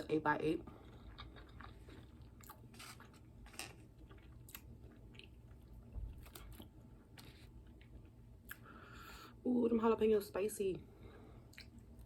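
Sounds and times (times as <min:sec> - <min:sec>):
chewing with wet mouth clicks: 0:00.8 - 0:08.7, 0:11.5 - 0:12.0.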